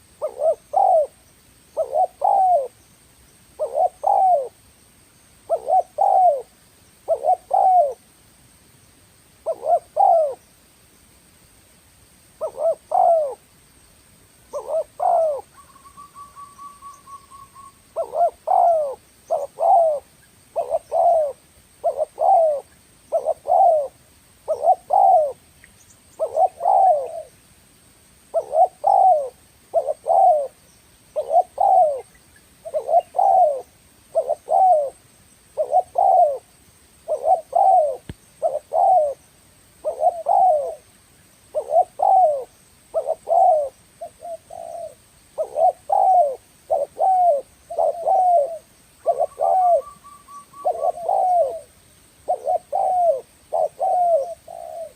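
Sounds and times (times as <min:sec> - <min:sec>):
dove cooing: 0:00.2 - 0:02.8, 0:03.6 - 0:04.6, 0:05.4 - 0:08.0, 0:09.4 - 0:10.4, 0:12.4 - 0:13.4, 0:14.5 - 0:25.4, 0:26.1 - 0:27.4, 0:28.3 - 0:30.6, 0:31.2 - 0:36.5, 0:37.1 - 0:39.2, 0:39.8 - 0:40.9, 0:41.5 - 0:54.9.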